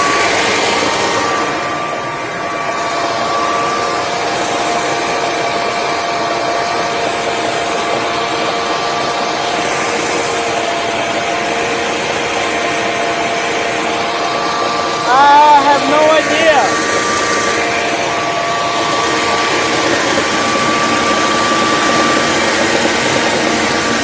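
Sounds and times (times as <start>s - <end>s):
generator running: 0.0s - 24.0s.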